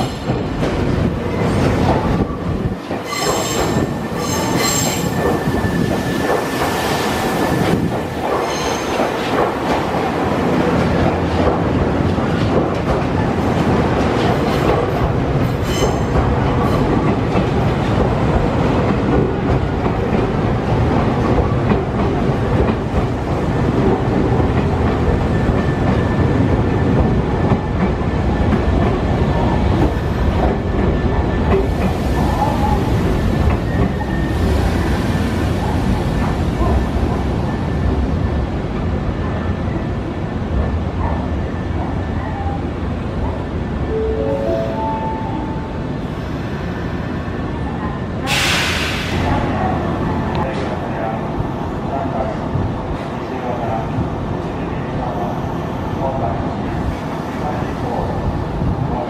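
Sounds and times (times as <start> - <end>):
train wheel and rail rumble: 0.0 - 59.0
train wheels squealing: 3.0 - 6.4, 8.4 - 9.0, 15.6 - 16.8.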